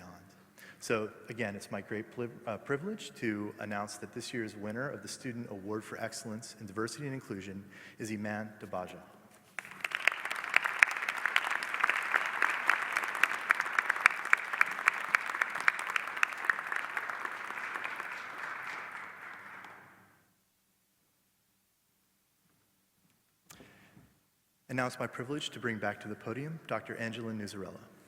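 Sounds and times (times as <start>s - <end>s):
audience applauding: 9.6s - 20.0s.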